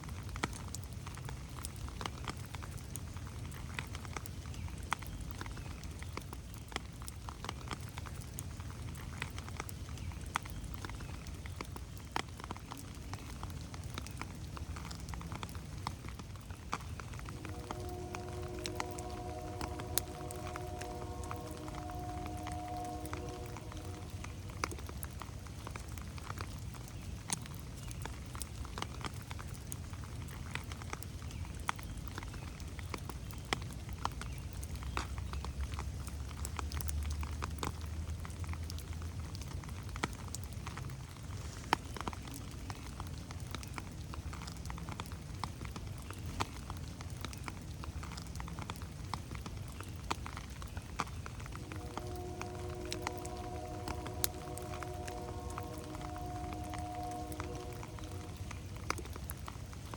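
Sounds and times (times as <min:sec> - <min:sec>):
raindrops ticking: 0:00.0 - 0:59.9
soft rain hiss: 0:00.0 - 0:59.9
low steady rumble: 0:17.0 - 0:26.6, 0:51.0 - 0:59.9.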